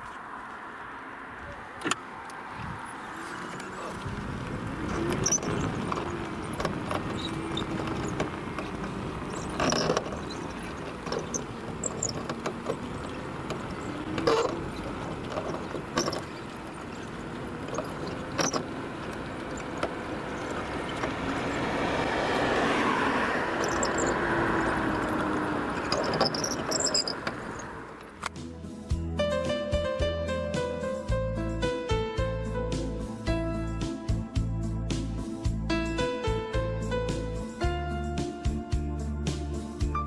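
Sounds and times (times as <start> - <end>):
wheelchair wheel squeaking: 1.8 - 28.3.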